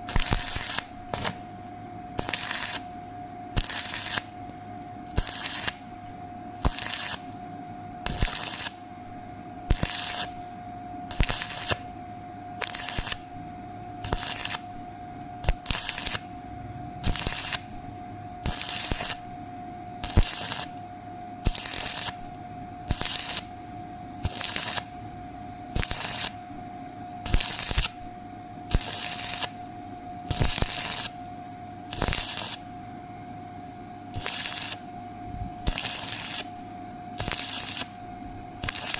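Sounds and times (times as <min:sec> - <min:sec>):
arc welding crackling: 0:00.0 - 0:01.4, 0:02.2 - 0:04.4, 0:05.1 - 0:05.9, 0:06.6 - 0:07.4, 0:08.0 - 0:08.8, 0:09.7 - 0:10.4, 0:11.1 - 0:11.9, 0:12.6 - 0:13.4, 0:14.0 - 0:14.8, 0:15.4 - 0:16.3, 0:17.0 - 0:17.8, 0:18.4 - 0:19.4, 0:20.0 - 0:20.8, 0:21.4 - 0:23.5, 0:24.2 - 0:25.0, 0:25.7 - 0:26.4, 0:27.2 - 0:28.1, 0:28.7 - 0:29.7, 0:30.3 - 0:31.2, 0:31.9 - 0:32.7, 0:34.1 - 0:34.9, 0:35.6 - 0:36.6, 0:37.2 - 0:38.0, 0:38.6 - 0:38.9.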